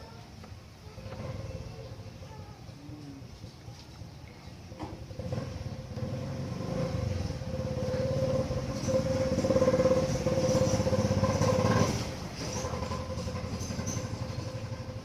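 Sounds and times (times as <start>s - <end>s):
engine running with a whine: 4.8s - 15.0s.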